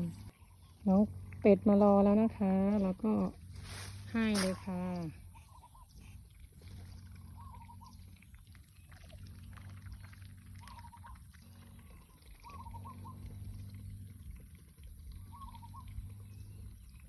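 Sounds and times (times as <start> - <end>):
steady low hum: 0.0 - 17.0
ducks splashing in water: 6.5 - 13.2.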